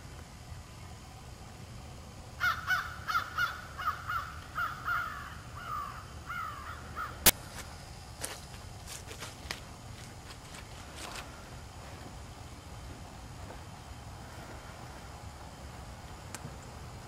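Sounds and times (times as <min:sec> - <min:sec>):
bird harsh calls: 0:02.4 - 0:07.2.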